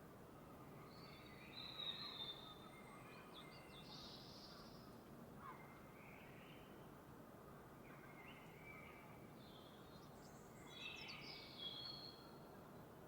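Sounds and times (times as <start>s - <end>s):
faint birds whistling and chirping: 0.6s - 4.9s, 7.9s - 12.4s.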